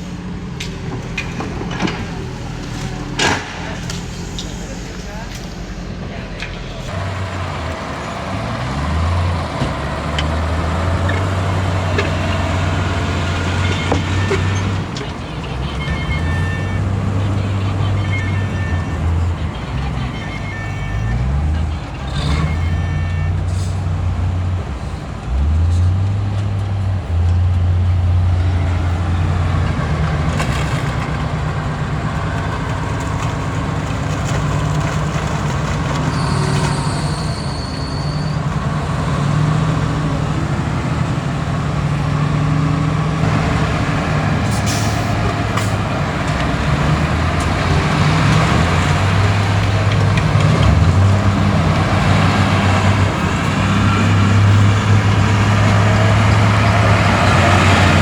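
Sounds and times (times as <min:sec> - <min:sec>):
heavy diesel engines working: 0:00.0 - 0:58.0
brief high tone: 0:13.4 - 0:23.5.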